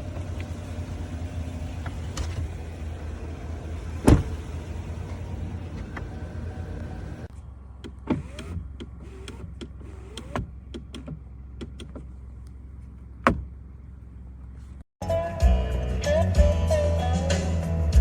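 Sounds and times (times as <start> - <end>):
power window motor humming: 7.8 - 12.1
short rising squeaks: 8.1 - 10.5
music: 15.0 - 18.0.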